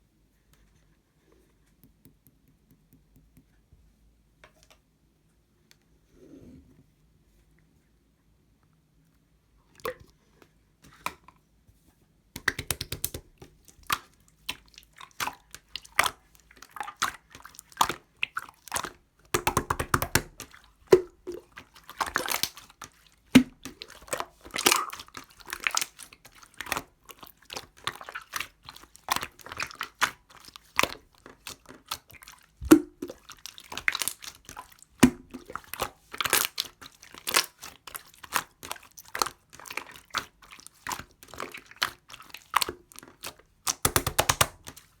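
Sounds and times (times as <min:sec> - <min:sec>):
slime squishing and popping: 0:12.4 - 0:16.1, 0:16.8 - 0:22.7, 0:23.3 - 0:26.0, 0:30.8 - 0:44.8.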